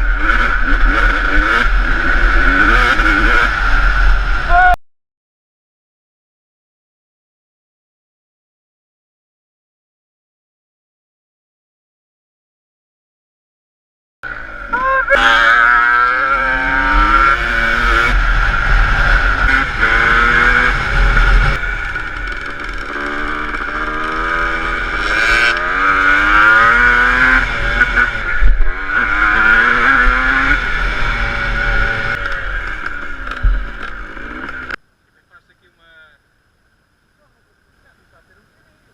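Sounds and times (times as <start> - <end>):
motocross bike engine revving: 0.0 - 4.6, 14.2 - 34.8.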